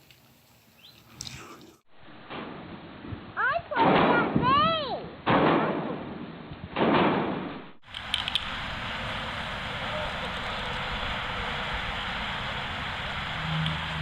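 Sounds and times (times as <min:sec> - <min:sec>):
loud bang: 0:05.2 - 0:07.8
steady rushing noise: 0:07.8 - 0:14.0.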